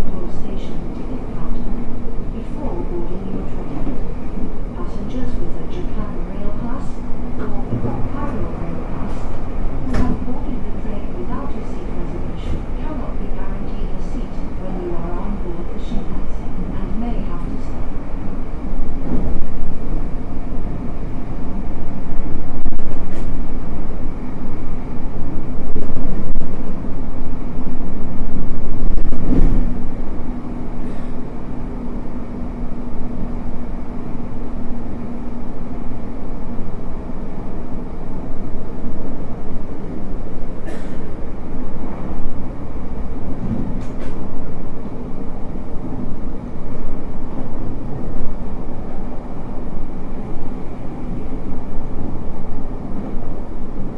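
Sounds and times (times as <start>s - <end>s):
low hum: 0.0s - 53.9s
train wheels rumbling on rail: 0.0s - 53.9s.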